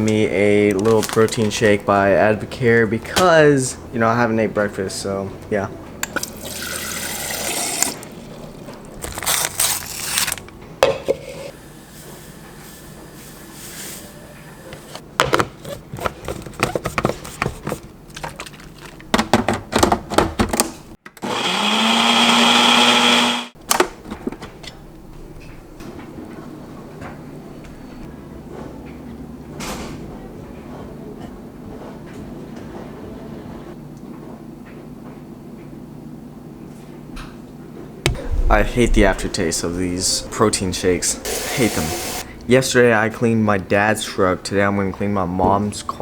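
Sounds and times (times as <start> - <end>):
kitchen blender motor: 21.2 - 23.6, 41.3 - 42.2.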